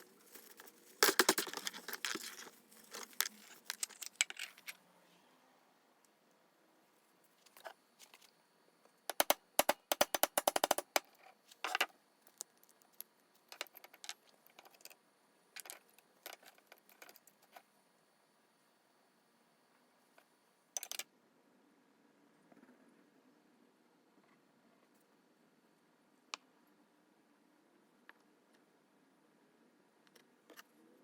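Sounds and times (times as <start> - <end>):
metal parts clinking and clattering: 0.3 - 4.8.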